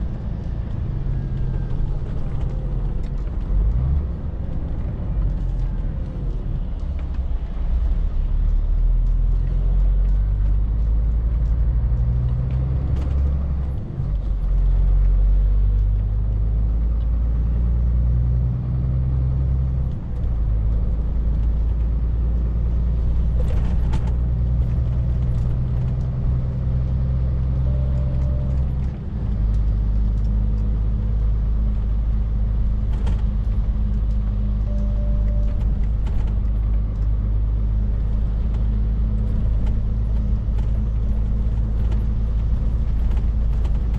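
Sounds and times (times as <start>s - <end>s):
lorry diesel engine driving: 0.0s - 43.9s.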